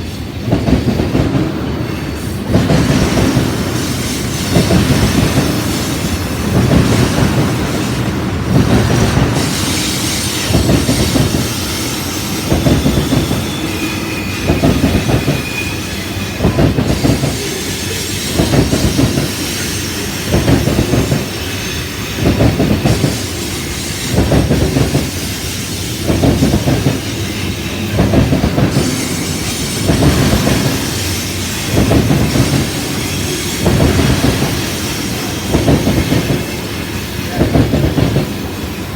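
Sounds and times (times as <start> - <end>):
train wheels clacking over rail joints: 0.0 - 38.9
faint wheel squeal: 9.4 - 24.4.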